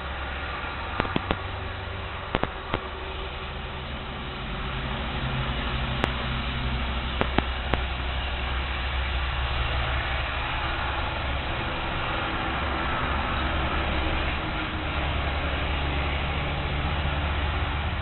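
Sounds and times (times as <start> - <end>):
steady hissing noise: 0.0 - 18.0
sharp clicks: 1.0 - 1.5, 2.3 - 2.9, 6.0 - 6.3, 7.2 - 7.9.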